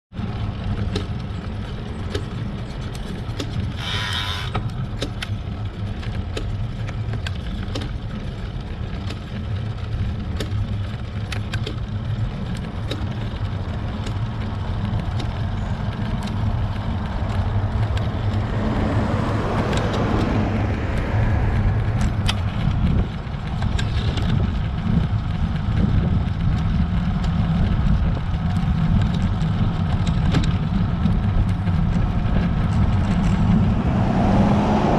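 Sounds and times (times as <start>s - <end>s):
wind and road rumble: 0.1s - 34.9s
bicycle chain clicking: 0.2s - 18.5s.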